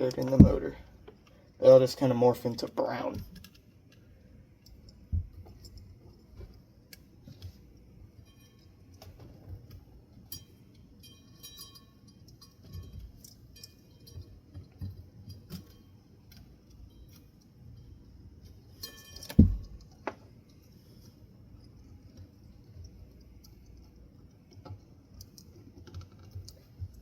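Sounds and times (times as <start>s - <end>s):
metallic clinks of parts and tools: 10.1s - 17.9s, 18.6s - 20.0s.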